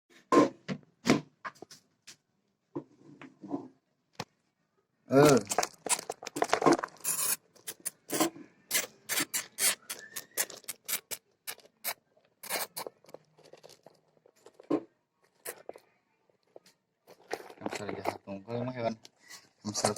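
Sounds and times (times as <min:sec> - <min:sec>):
hamsters scrabbling and scratching: 0:09.1 - 0:15.9, 0:16.5 - 0:18.9.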